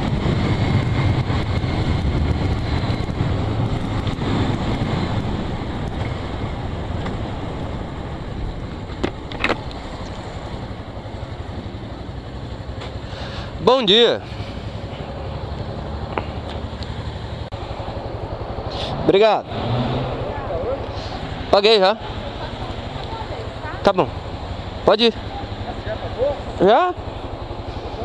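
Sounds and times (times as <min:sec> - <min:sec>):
wind rush on microphone: 0:00.0 - 0:11.8
motorcycle engine running: 0:00.0 - 0:28.0.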